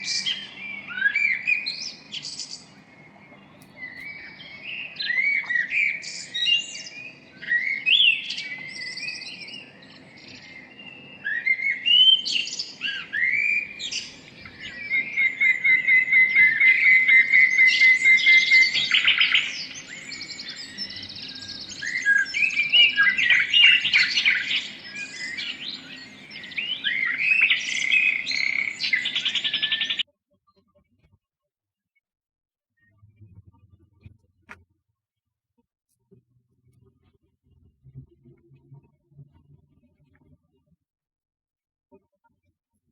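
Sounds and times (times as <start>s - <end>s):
small birds chirping and singing: 0.0s - 30.0s.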